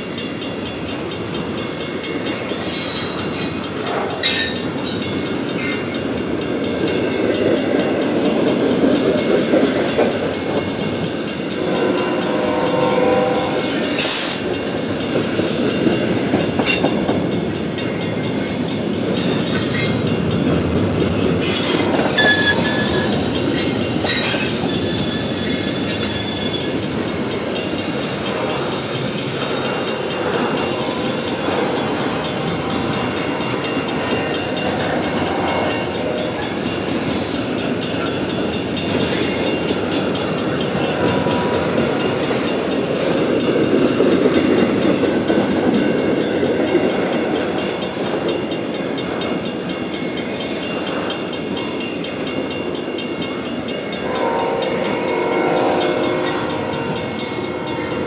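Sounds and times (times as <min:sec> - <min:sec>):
train wheels clattering on rails: 0:00.0 - 0:58.0
ringing wheel squeal: 0:02.5 - 0:06.0, 0:11.5 - 0:14.8, 0:19.2 - 0:42.7.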